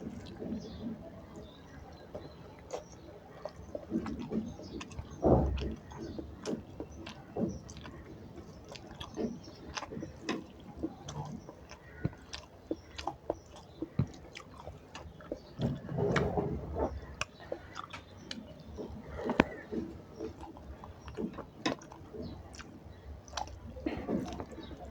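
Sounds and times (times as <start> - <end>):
person chewing food: 0.0 - 24.9
wet mouth clicks: 8.6 - 24.9.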